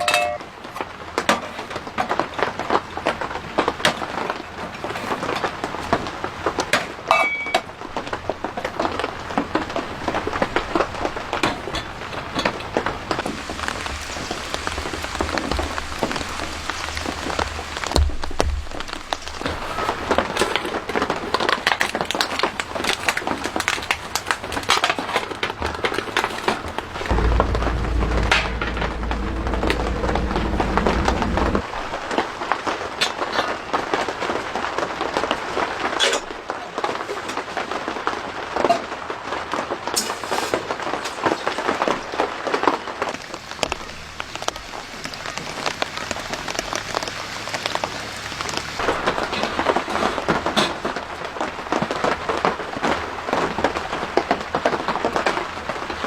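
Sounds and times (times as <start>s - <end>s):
rain pattering: 0.0s - 56.0s
low rumble: 26.7s - 32.4s.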